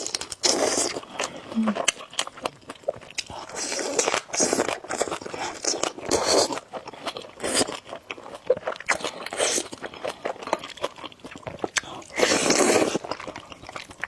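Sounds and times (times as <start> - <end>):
wet chewing: 0.0 - 14.0
noodle slurping: 12.1 - 13.2.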